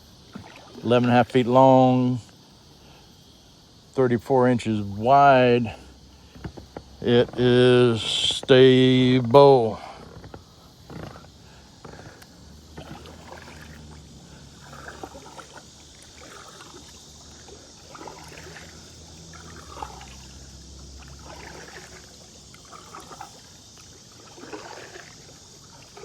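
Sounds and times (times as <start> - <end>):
paddle splashing in water: 0.0 - 2.8, 4.8 - 26.0
water dripping: 11.8 - 26.0.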